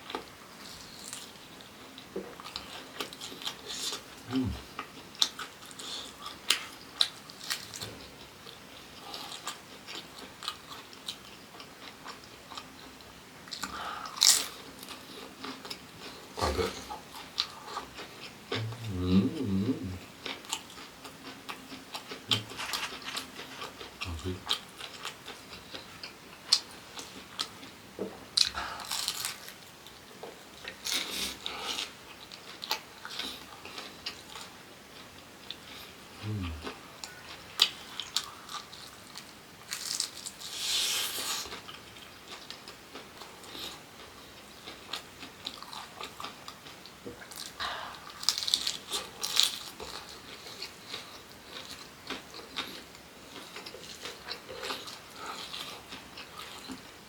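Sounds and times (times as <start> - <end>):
food crunching while chewed: 0.0 - 19.0, 20.2 - 27.7, 28.4 - 57.0.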